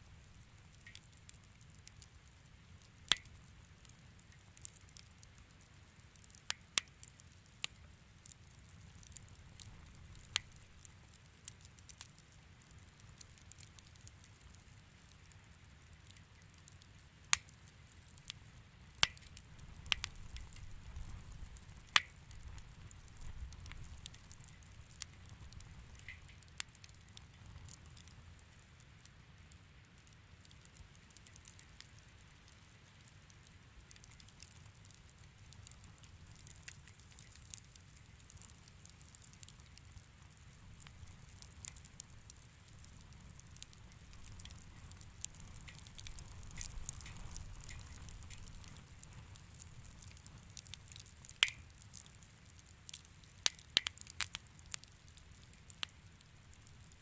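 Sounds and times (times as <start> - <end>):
fireplace fire crackling: 0.0 - 57.0.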